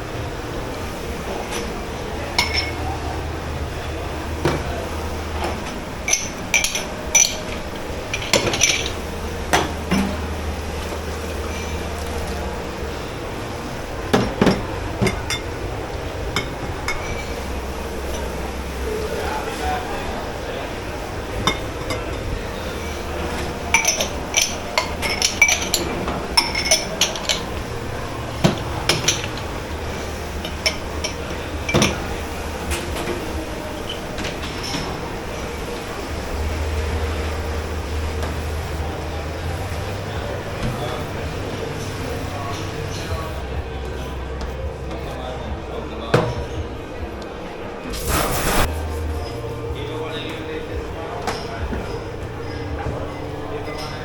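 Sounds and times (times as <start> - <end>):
low machine hum: 0.0 - 54.0
crockery and cutlery clanking: 1.1 - 36.1
dishes clinking and clattering: 1.2 - 12.8, 14.0 - 19.8, 21.3 - 35.8.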